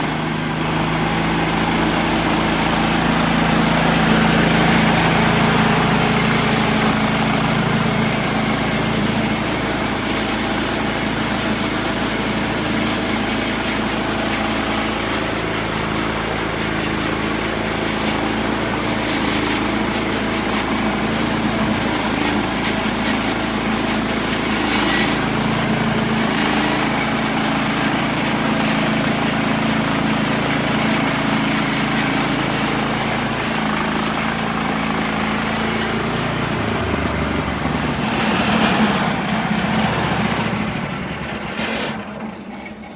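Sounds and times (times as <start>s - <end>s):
small gasoline engine saw running: 0.0s - 42.9s.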